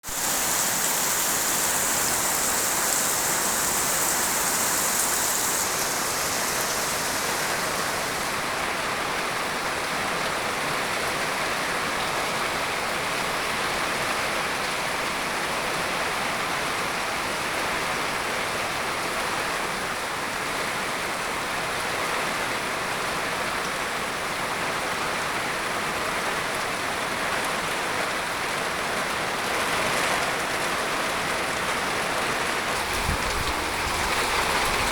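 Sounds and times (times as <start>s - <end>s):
high hiss: 0.0s - 8.4s
steady rain falling: 0.0s - 19.4s, 25.0s - 34.9s.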